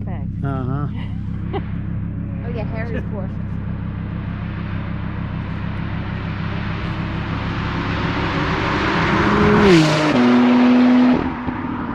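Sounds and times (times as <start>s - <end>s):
sports car accelerating past: 3.3s - 11.9s.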